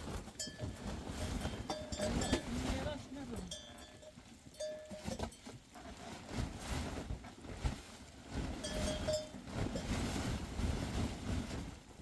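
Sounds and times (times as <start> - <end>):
sheep and goat bells ringing: 0.3 - 5.6, 8.6 - 9.4.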